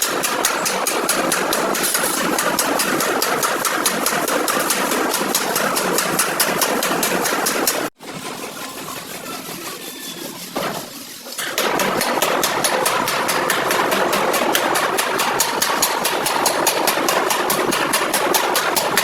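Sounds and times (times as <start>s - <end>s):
engine idling with ticking: 11.6s - 19.0s.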